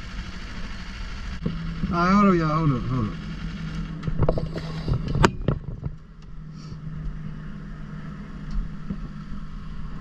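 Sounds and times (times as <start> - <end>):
motorcycle engine idling: 0.0 - 4.2.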